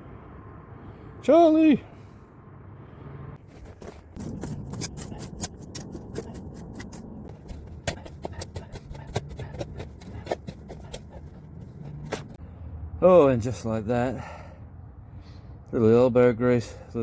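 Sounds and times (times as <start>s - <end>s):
hand tools scraping soil and gravel: 3.4s - 12.4s.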